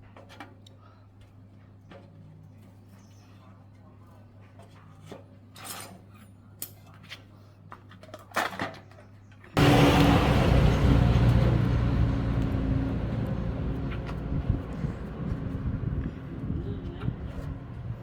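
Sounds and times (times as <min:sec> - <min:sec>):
machine engine humming: 0:09.6 - 0:18.0.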